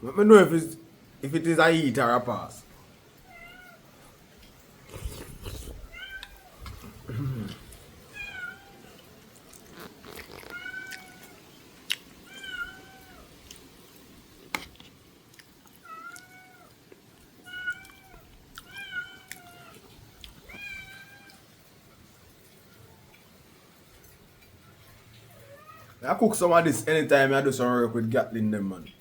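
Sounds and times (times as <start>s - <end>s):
cat meowing: 3.2s - 4.0s, 5.7s - 6.9s, 8.1s - 9.0s, 9.8s - 11.4s, 12.2s - 13.4s, 15.8s - 16.8s, 17.4s - 21.4s, 25.3s - 26.0s.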